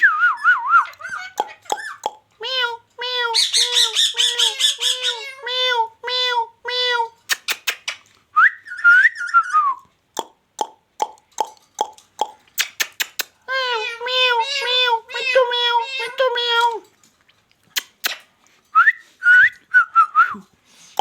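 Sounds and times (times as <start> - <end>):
parrot calling: 0.4 - 8.0, 11.9 - 16.9
parrot whistle: 8.4 - 9.8
sharp clicks: 11.0 - 13.4.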